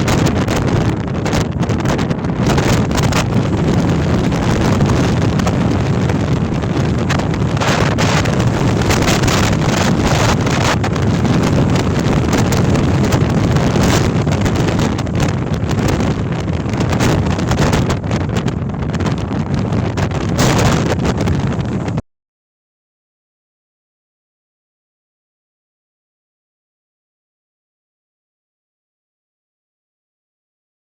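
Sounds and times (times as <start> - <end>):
storm wind roaring on microphone: 0.0 - 22.0.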